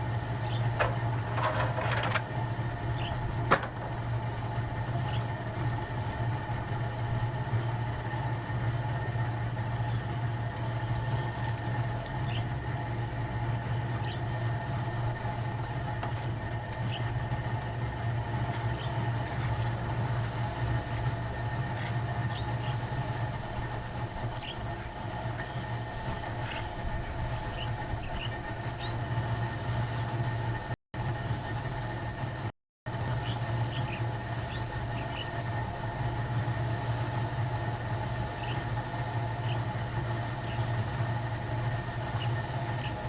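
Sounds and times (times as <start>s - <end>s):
motor humming: 0.0s - 30.1s.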